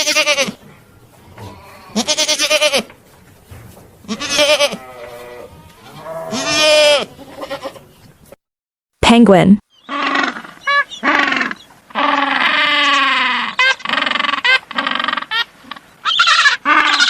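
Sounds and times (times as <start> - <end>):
goat bleating: 0.0 - 0.6, 1.3 - 2.9, 4.0 - 7.9, 16.0 - 17.0.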